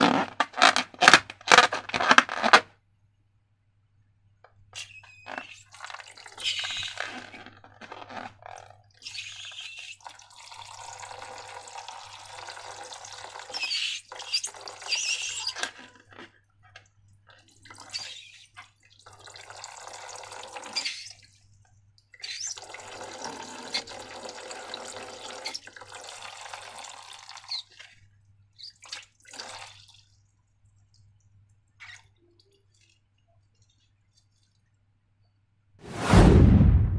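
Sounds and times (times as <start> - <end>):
liquid pouring: 5.3 - 8.7, 10.0 - 13.6, 18.7 - 21.3, 22.6 - 28.0, 28.8 - 30.3.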